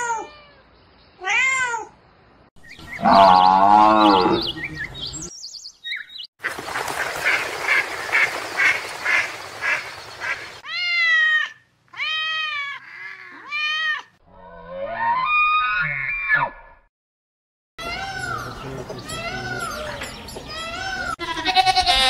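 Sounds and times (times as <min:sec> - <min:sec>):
ducks quacking: 0:06.4 - 0:10.6.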